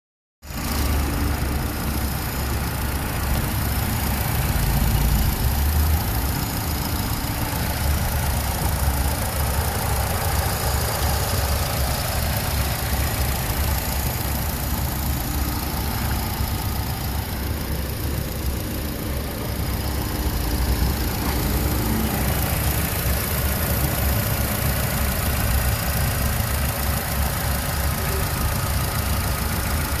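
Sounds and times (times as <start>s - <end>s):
car engine idling: 0.5s - 30.0s.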